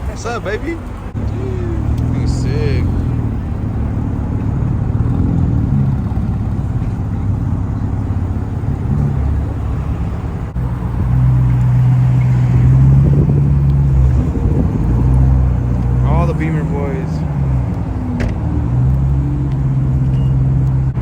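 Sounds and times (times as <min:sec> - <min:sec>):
car engines idling rumble: 0:00.0 - 0:21.0
engine low drone: 0:00.0 - 0:21.0.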